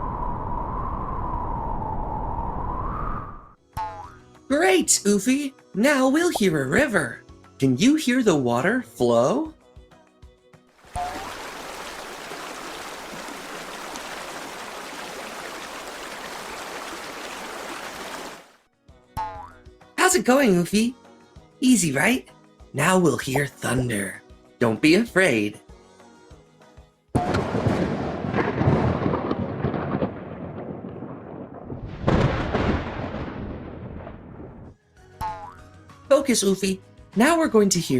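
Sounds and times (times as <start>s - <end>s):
river water rushing and babbling: 10.8s - 18.6s
thunder clap and rumble: 27.2s - 34.7s.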